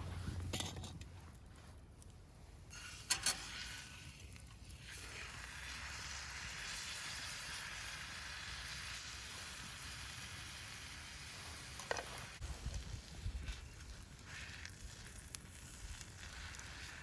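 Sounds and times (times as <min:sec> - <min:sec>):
beef sizzling in a pan: 0:04.8 - 0:17.0.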